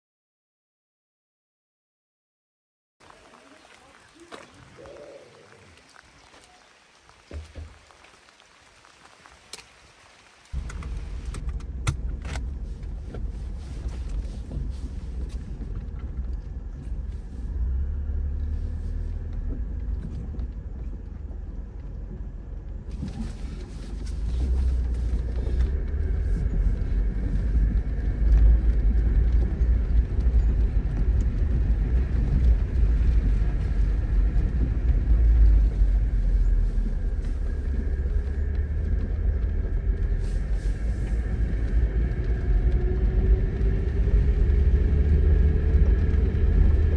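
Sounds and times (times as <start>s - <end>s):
car engine rumbling: 10.5s - 46.9s.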